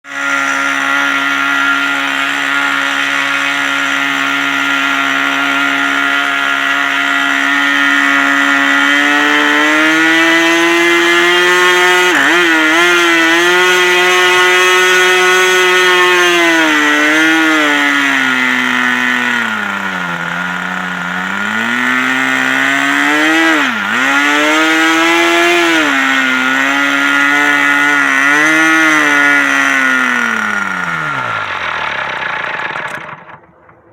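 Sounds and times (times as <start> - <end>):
model airplane engine running: 0.0 - 33.9.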